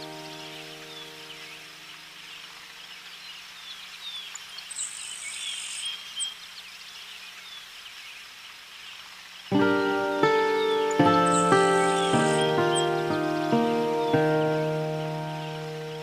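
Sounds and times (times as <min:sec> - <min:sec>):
music: 0:00.0 - 0:01.7, 0:09.5 - 0:16.0
tits chirping: 0:00.0 - 0:16.0.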